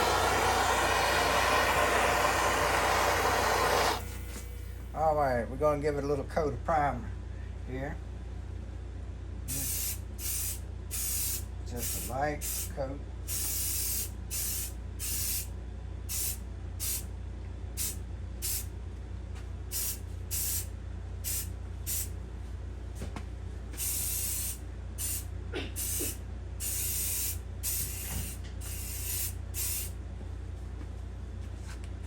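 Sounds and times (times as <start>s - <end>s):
spray can hissing: 0.0s - 4.5s, 21.3s - 22.1s, 23.8s - 25.2s, 25.8s - 29.9s
low hum: 0.0s - 5.0s.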